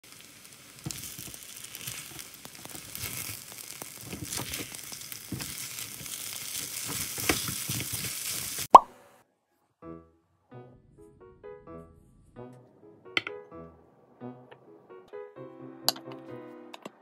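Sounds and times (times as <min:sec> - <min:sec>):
rice sizzling in a pan: 0:00.0 - 0:08.8
spatula stirring and scraping: 0:00.8 - 0:08.7.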